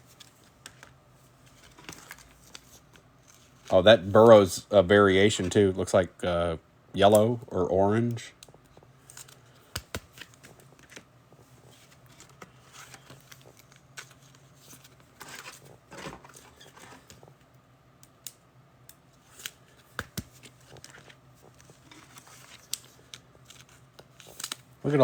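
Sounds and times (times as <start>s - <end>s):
card edges clicking: 19.4s - 21.7s.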